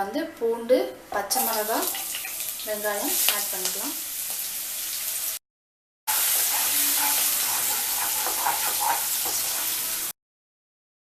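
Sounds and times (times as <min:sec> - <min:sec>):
vegetables sizzling in hot oil: 0:01.3 - 0:05.4, 0:06.1 - 0:10.2.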